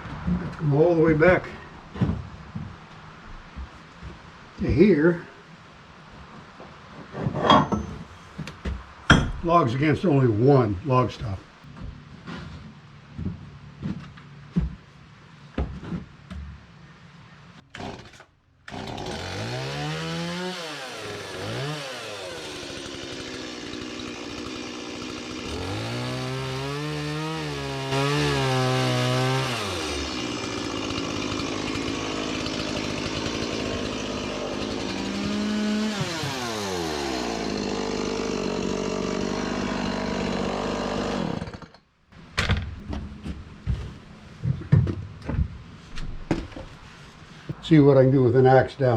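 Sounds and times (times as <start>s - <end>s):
saw gasoline engine cutting: 17.7s - 41.8s.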